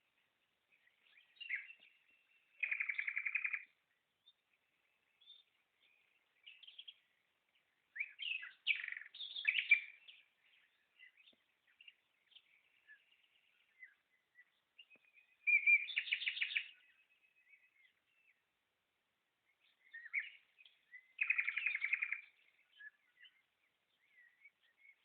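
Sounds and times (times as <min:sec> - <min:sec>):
soft bird chirps: 0:00.0 - 0:25.0
songbirds trilling: 0:00.0 - 0:25.0.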